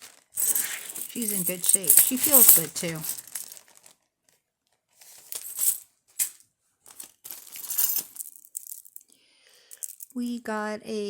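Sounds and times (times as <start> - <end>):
metal jewelry clinking and rattling: 0.3 - 3.8, 5.2 - 9.1, 9.7 - 10.1.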